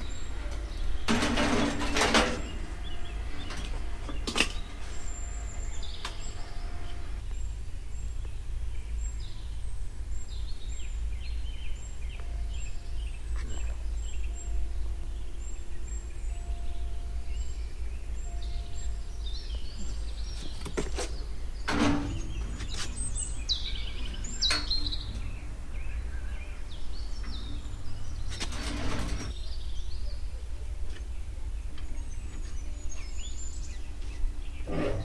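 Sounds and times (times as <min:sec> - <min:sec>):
wild birds chirping: 0:00.0 - 0:35.0
noisy rustles: 0:19.9 - 0:29.6.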